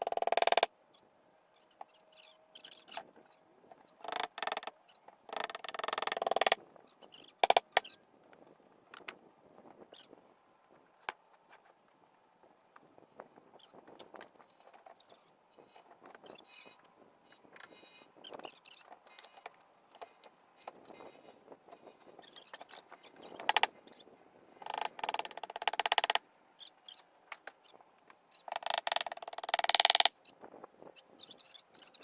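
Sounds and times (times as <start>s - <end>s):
rapid rattling bursts: 5.3s - 6.6s, 23.4s - 23.7s, 24.6s - 26.2s, 28.5s - 30.1s.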